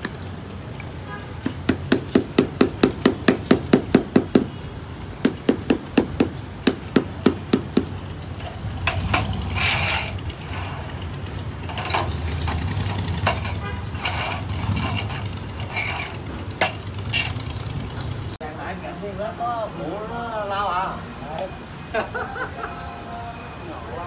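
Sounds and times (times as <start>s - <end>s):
scraping noise: 8.4s - 17.4s.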